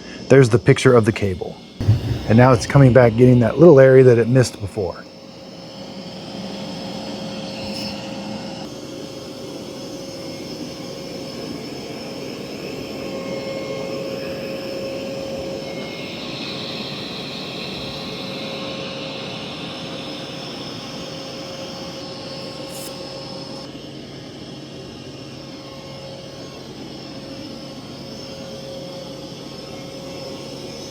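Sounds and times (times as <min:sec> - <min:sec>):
high hiss: 0:01.8 - 0:05.0.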